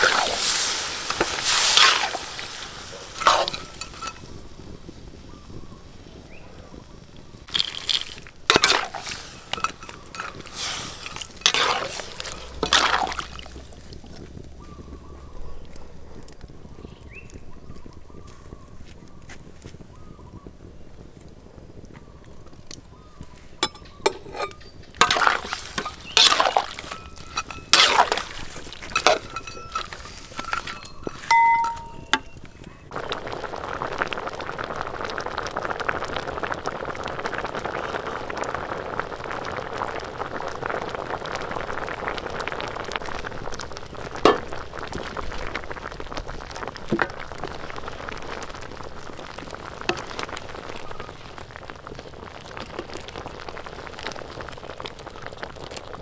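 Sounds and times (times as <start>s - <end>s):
utensils clinking on metal cookware: 0.0s - 4.3s, 7.6s - 13.4s, 23.6s - 32.4s
food frying in hot oil: 0.0s - 15.7s, 16.5s - 56.0s.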